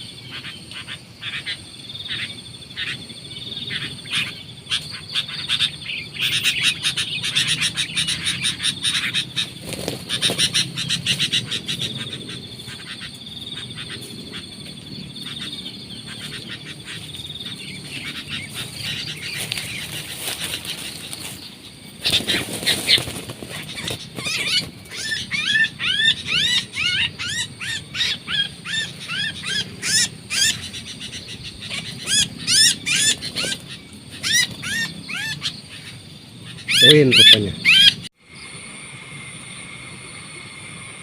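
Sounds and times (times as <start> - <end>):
bird trilling: 0.0 - 38.1
sharp rising bird chirps: 0.0 - 38.6
rustling flurry: 9.5 - 10.6, 18.0 - 24.9.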